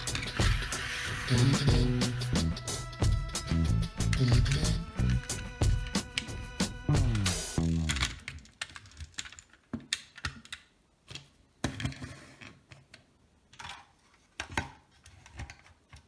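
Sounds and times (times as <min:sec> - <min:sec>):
toy car pieces clicking: 0:07.6 - 0:11.2.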